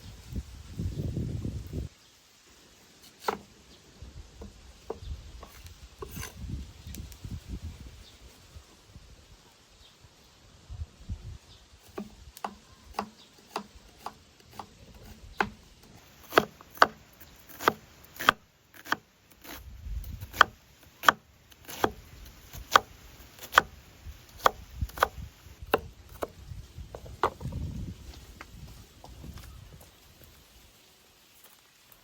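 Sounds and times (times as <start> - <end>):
knife chopping on wooden board: 11.9 - 15.6, 16.2 - 19.6, 20.2 - 23.7.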